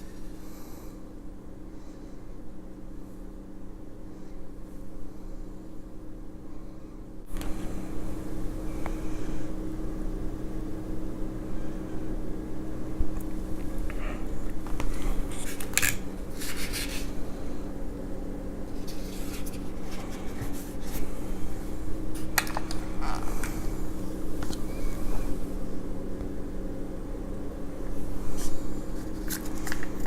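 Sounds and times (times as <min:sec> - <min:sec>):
steady low hum: 0:00.0 - 0:30.0
food containers crinkling: 0:29.0 - 0:30.0.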